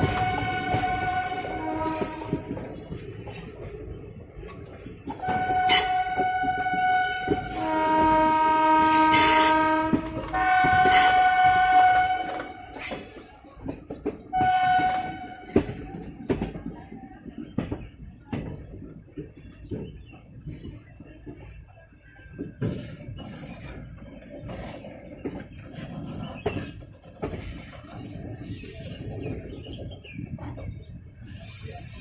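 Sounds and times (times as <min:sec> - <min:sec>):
locomotive air horn blasts: 0:00.0 - 0:02.6, 0:05.2 - 0:13.1, 0:14.4 - 0:15.6
wheels clicking on rail joints: 0:00.0 - 0:32.0.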